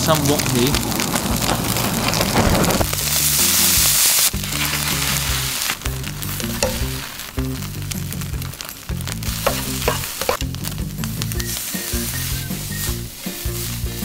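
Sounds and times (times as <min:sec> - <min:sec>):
food sizzling in a pan: 0:00.0 - 0:14.0
background music with bass line: 0:02.9 - 0:14.0
spatula scraping and clicking: 0:09.4 - 0:10.4.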